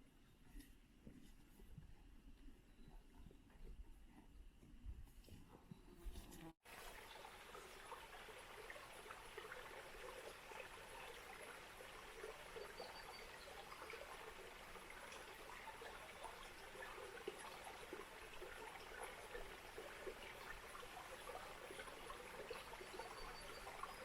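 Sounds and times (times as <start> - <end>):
stream trickling: 6.4 - 24.0.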